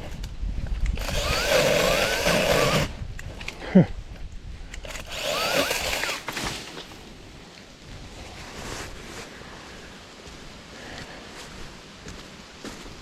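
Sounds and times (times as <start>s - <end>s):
branches and leaves rustling: 0.0s - 13.0s
mini chainsaw cutting a limb: 0.9s - 3.0s, 4.8s - 6.6s.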